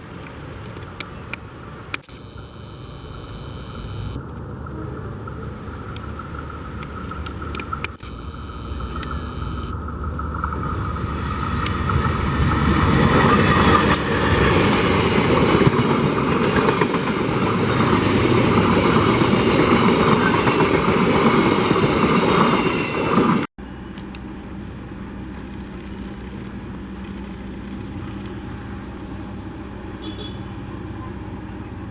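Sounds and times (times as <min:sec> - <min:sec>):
steady low rumble: 0:00.0 - 0:13.5
train passing on rails: 0:09.8 - 0:31.9.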